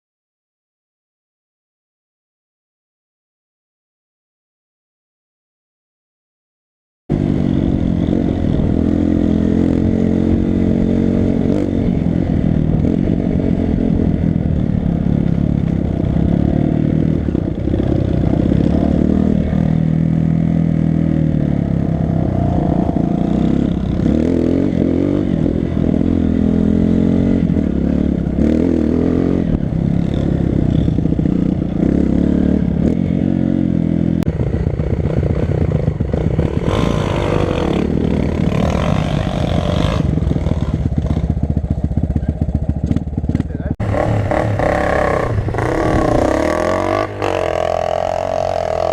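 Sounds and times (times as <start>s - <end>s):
dirt bike engine revving: 7.1s - 48.9s
bike rattling over rough ground: 38.3s - 44.4s.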